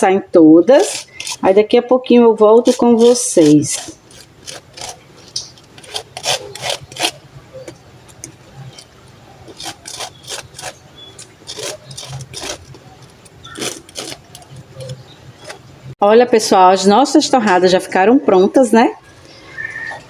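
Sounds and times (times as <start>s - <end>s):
knife scraping spread on bread: 0.7s - 1.6s, 2.6s - 15.7s.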